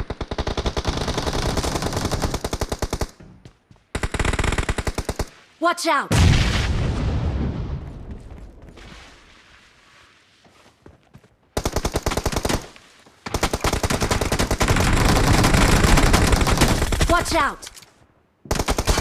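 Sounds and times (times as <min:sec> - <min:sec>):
video game automatic gunfire: 0:00.0 - 0:03.2, 0:04.0 - 0:05.3, 0:11.6 - 0:12.7, 0:13.3 - 0:17.4, 0:18.5 - 0:19.0
heavy low boom: 0:06.1 - 0:08.6.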